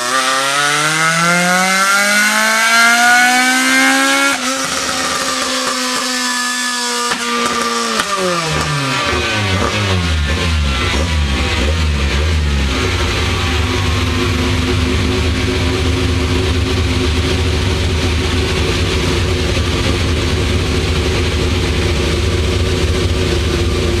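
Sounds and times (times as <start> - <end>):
car engine with loud exhaust: 0.0 - 24.0.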